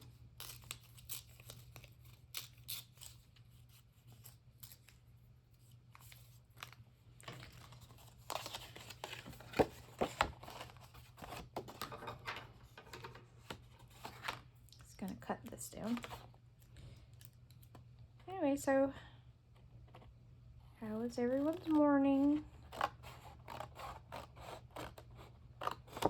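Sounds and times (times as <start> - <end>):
low steady hum: 0.0 - 26.0
scissors snipping paper: 0.3 - 5.0, 21.4 - 26.0
paper rustling: 5.9 - 14.5.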